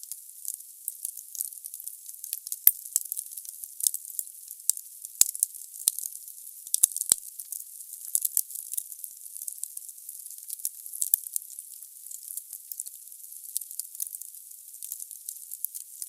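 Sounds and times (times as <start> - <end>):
wood fire crackling: 6.7 - 16.0.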